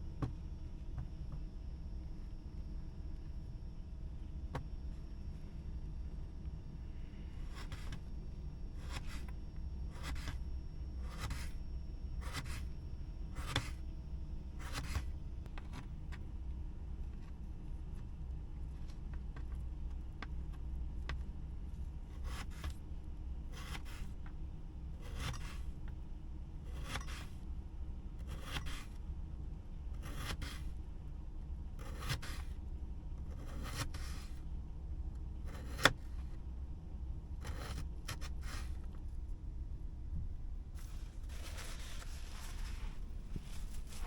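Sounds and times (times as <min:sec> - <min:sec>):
steady low hum: 0:00.0 - 0:44.0
slow scraping strokes: 0:40.8 - 0:44.0.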